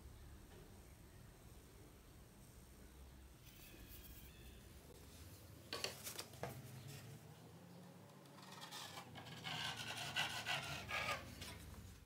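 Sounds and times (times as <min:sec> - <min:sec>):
sanding disc rubbing wood: 0:08.6 - 0:11.3.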